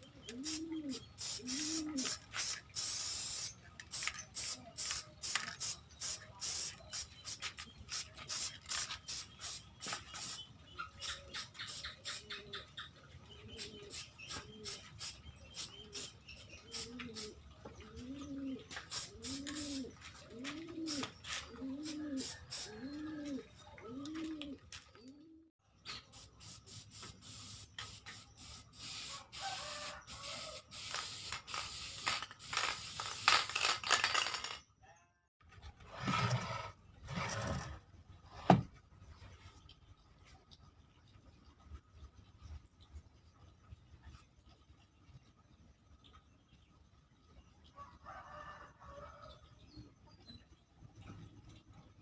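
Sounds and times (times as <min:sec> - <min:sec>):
dove cooing: 0:00.1 - 0:02.2, 0:16.7 - 0:25.4
sharp clicks and scratches: 0:30.7 - 0:34.6.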